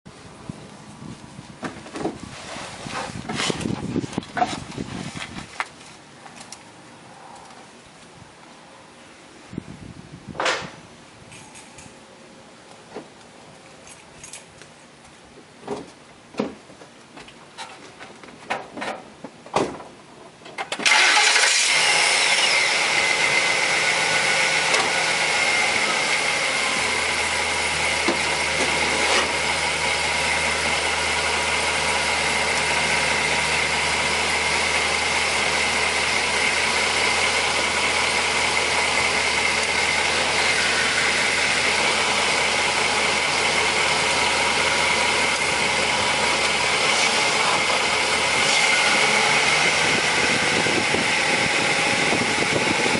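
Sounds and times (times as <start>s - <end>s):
car engine starting and idling: 20.6s - 52.9s
high whine: 21.6s - 52.9s.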